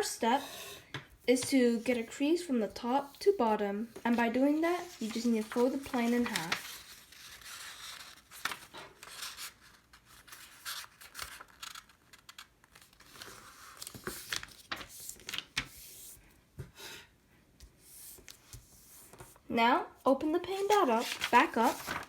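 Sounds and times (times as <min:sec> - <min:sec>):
paper being folded and creased: 0:03.9 - 0:16.1, 0:17.9 - 0:19.4, 0:20.5 - 0:22.0.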